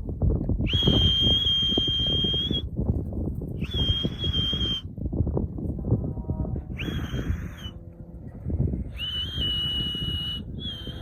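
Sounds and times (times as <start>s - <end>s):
high-pitched whistle blasts: 0.6s - 2.7s, 3.6s - 4.9s, 6.7s - 7.8s, 8.9s - 11.0s.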